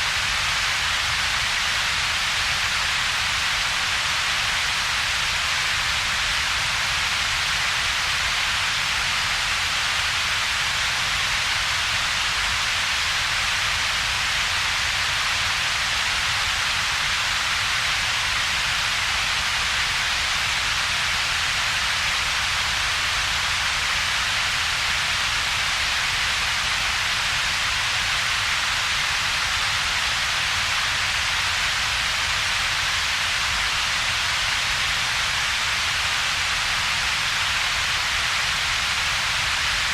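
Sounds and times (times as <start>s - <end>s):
steady synthetic hiss: 0.0s - 39.9s.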